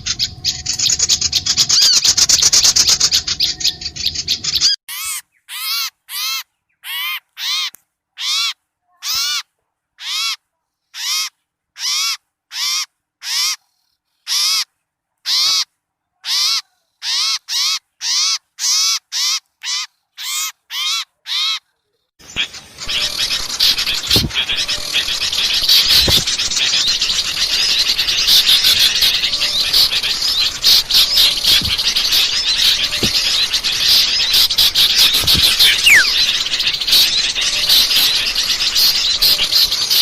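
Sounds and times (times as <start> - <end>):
chorus of birds chirping: 0.0 - 9.4, 22.2 - 40.0
bird repeating harsh call: 22.2 - 40.0.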